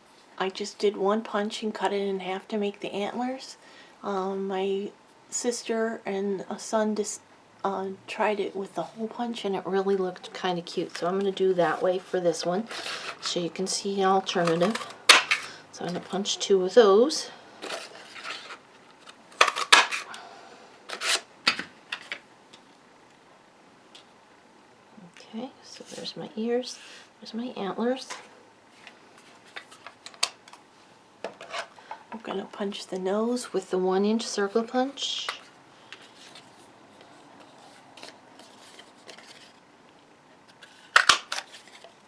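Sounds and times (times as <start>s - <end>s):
paper rustling: 14.3s - 15.6s, 17.6s - 20.1s, 35.9s - 39.6s, 40.5s - 42.0s.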